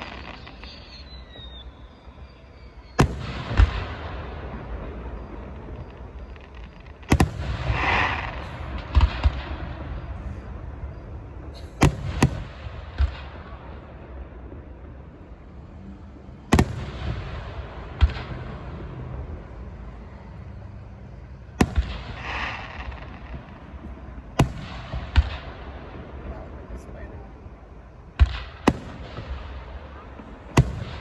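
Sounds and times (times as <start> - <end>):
fireworks bangs: 0.0 - 31.0
fireworks crackling hiss: 0.0 - 31.0.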